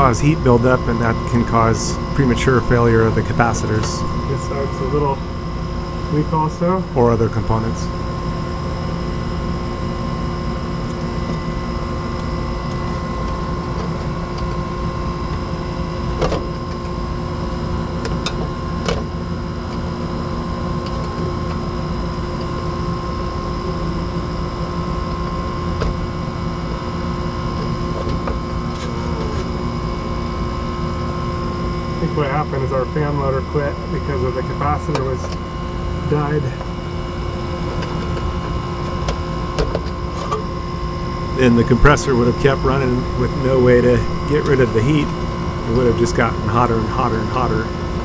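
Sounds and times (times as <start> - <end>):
machinery humming and whining: 0.0 - 15.2, 41.0 - 48.0.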